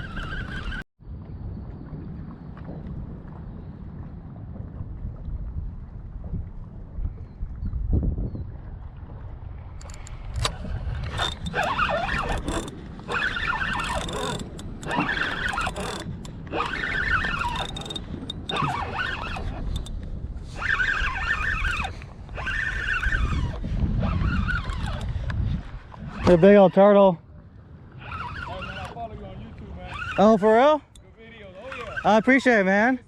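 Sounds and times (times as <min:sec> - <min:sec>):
fishing reel cranking whine: 0:00.0 - 0:00.8, 0:09.8 - 0:19.9, 0:20.6 - 0:25.1, 0:29.9 - 0:31.0, 0:31.6 - 0:32.3.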